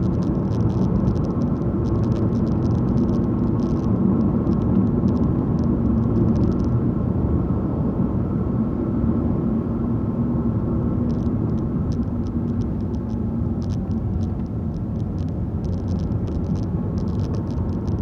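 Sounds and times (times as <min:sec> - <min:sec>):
faint light ticks: 0:00.0 - 0:06.8, 0:11.1 - 0:18.0
car engine and tyre rumble: 0:00.0 - 0:18.0.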